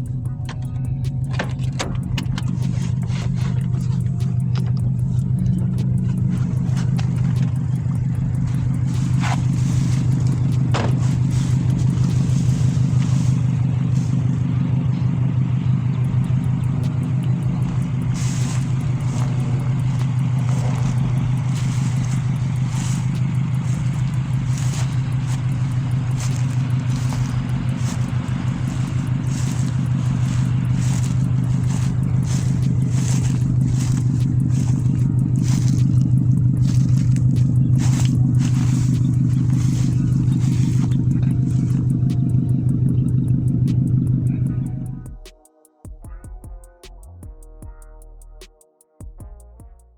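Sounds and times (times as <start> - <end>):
short clicks and crackles: 0.0 - 12.2
car engine drone: 0.0 - 45.3.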